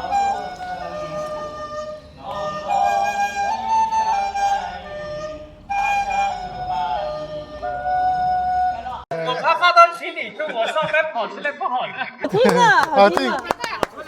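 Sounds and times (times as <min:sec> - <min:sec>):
wind instrument melody: 0:00.0 - 0:09.0.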